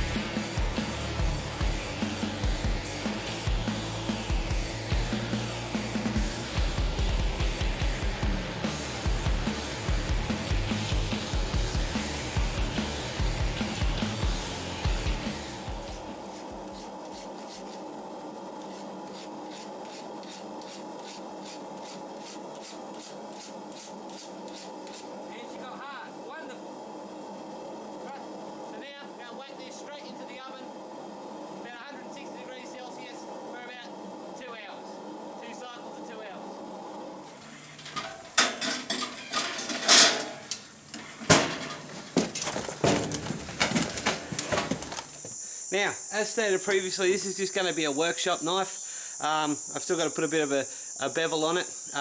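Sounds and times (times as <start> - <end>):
steady background hum: 0.0 - 52.0
abrasive tool scraping steel: 16.1 - 18.0, 18.6 - 25.4, 37.2 - 45.3
metal objects clattering: 37.3 - 45.3.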